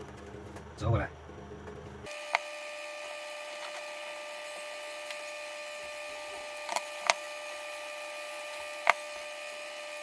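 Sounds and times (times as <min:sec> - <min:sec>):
hum of held tones: 0:02.1 - 0:10.0.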